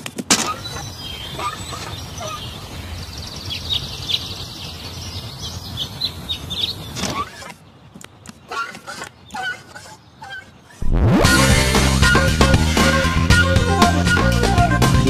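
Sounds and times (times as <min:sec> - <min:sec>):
birds chirping: 0:00.0 - 0:15.0
short rising sweep: 0:10.8 - 0:13.3
steady low rumble: 0:10.8 - 0:13.8.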